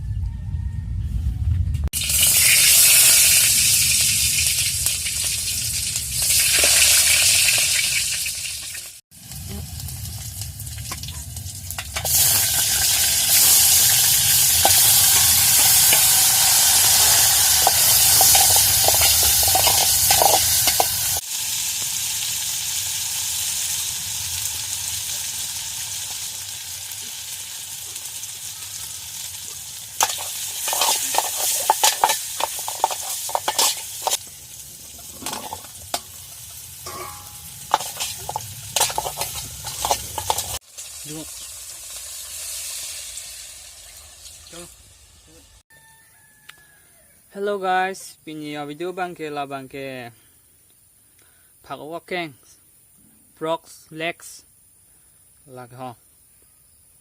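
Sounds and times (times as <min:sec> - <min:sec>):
food sizzling in hot oil: 0:02.0 - 0:46.4
stirring in a pan: 0:14.5 - 0:21.2, 0:30.0 - 0:41.5.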